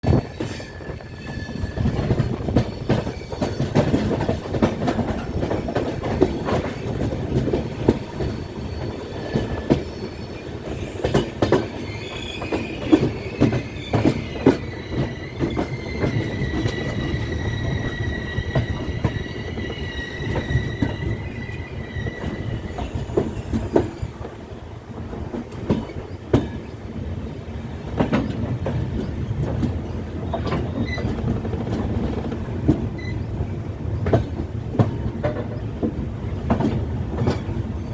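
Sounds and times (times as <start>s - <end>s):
high wheel squeal: 0.0s - 3.9s, 11.8s - 24.2s
train rumbling: 0.0s - 37.9s.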